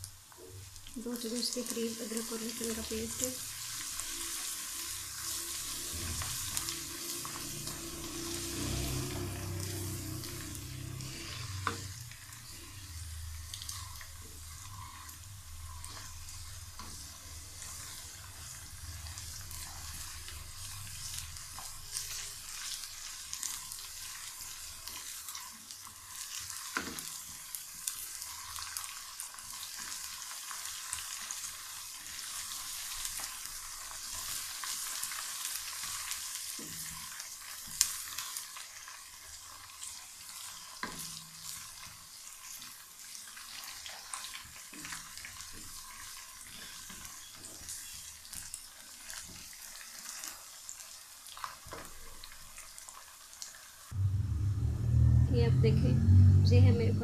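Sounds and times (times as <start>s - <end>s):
onions sizzling in hot oil: 0.0s - 54.1s.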